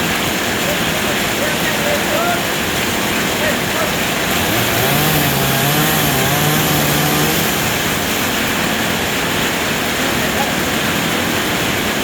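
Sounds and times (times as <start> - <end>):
chainsaw cutting tree: 4.1 - 9.0.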